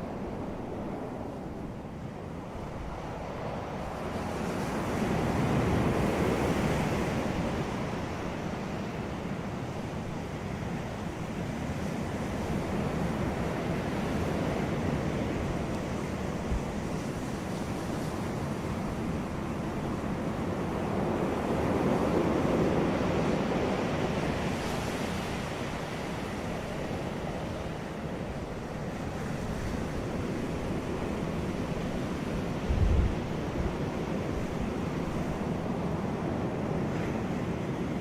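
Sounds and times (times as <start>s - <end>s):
ocean waves breaking: 11.2s - 38.0s
wind buffeting microphone: 13.5s - 38.0s.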